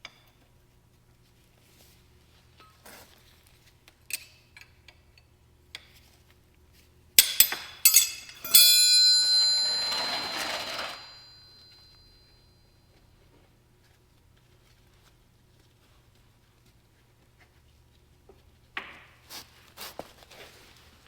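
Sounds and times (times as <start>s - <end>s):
loud metallic clang: 7.2s - 11.4s
metal objects clinking: 7.2s - 11.9s.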